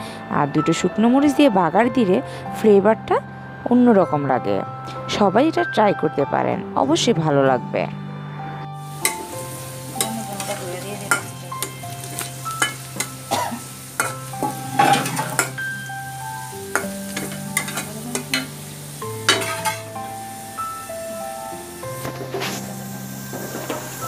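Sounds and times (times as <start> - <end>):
garlic sizzling in hot oil: 8.8 - 24.0
spatula scraping metal pan: 14.0 - 15.8, 19.2 - 19.9.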